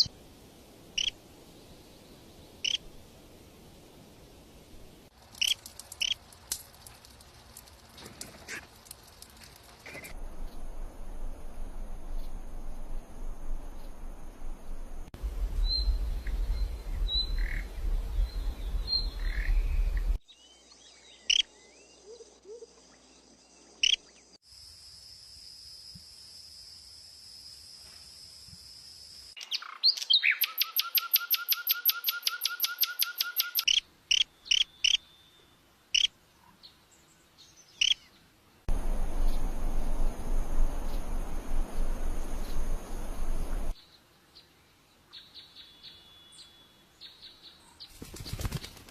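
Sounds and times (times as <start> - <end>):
low rumble: 10.2 - 20.2, 38.7 - 43.8
small birds chirping: 15.6 - 24.4, 29.4 - 48.8
steady high whine: 38.7 - 43.8.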